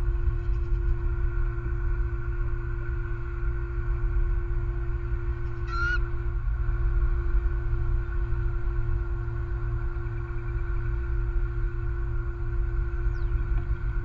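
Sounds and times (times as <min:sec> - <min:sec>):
high wavering bird call: 0:05.5 - 0:06.1.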